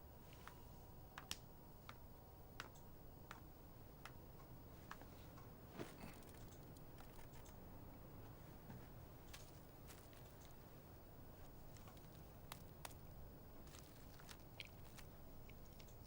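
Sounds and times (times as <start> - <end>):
faint clicks and ticks: 1.2 - 7.6, 11.4 - 16.0.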